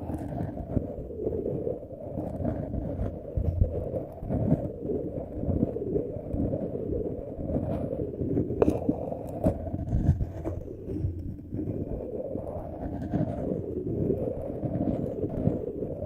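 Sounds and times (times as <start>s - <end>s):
rubbing on microphone: 0.1s - 16.0s.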